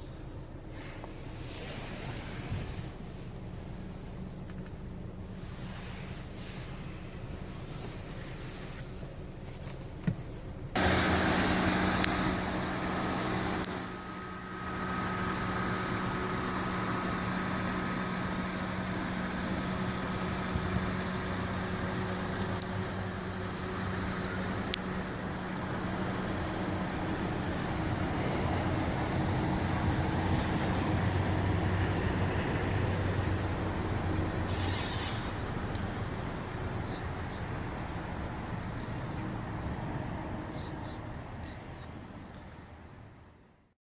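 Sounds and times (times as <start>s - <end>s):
car engine starting and idling: 0.0s - 43.7s.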